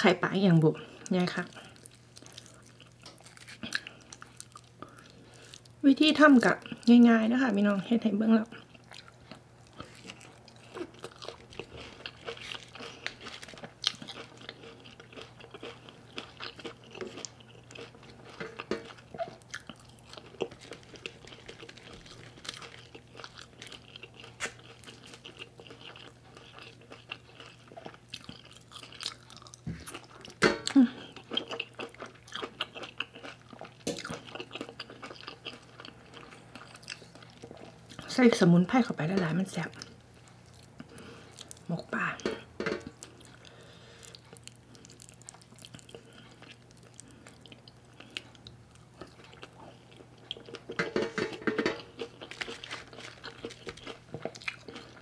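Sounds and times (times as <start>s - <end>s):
faint steady hum: 0.0s - 55.0s
person chewing food: 0.8s - 5.8s, 8.5s - 38.1s, 39.6s - 55.0s.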